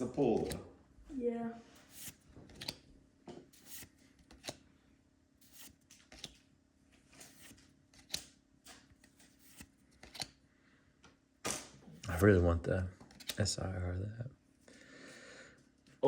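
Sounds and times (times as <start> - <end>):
trading cards flicking and rustling: 0.2 - 0.6, 1.8 - 2.9, 3.5 - 4.7, 5.4 - 10.4, 13.0 - 13.6.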